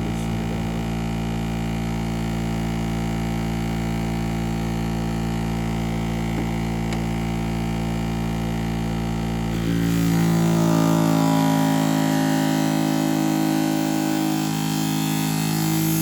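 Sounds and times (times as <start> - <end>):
sharpening machine motor hum: 3.9 - 16.0
higher tone: 9.4 - 16.0.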